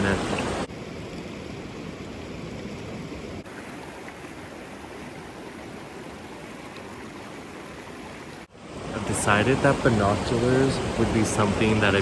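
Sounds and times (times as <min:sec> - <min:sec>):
rushing creek water: 0:00.0 - 0:12.0.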